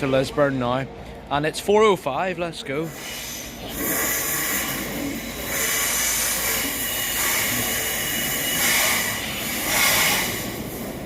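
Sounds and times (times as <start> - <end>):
train rushing hiss: 2.8 - 11.0.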